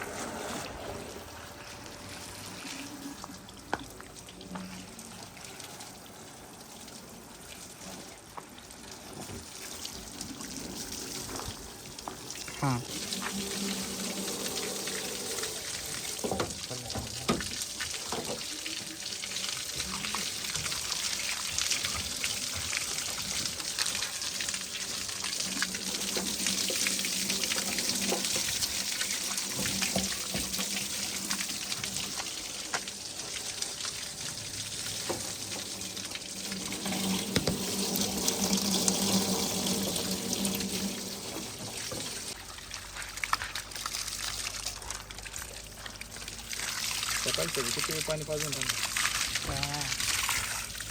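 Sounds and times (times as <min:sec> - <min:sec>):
water running and splashing: 0:00.0 - 0:50.9.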